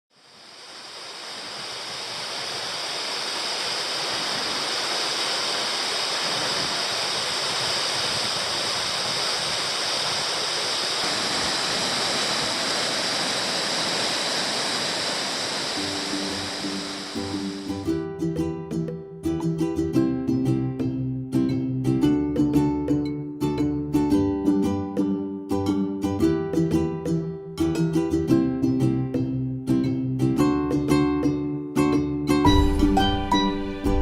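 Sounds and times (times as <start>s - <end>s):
waterfall rushing: 0.2s - 18.0s
plucked string music: 15.8s - 34.0s.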